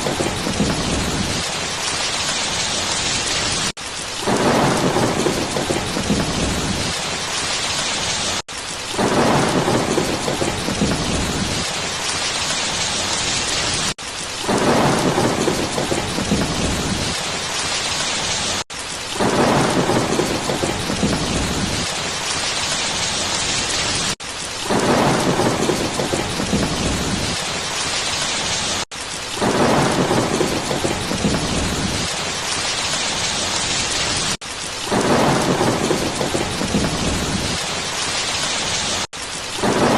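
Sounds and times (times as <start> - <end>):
heavy rain: 0.0 - 39.9
thunder rumbling: 0.0 - 39.9.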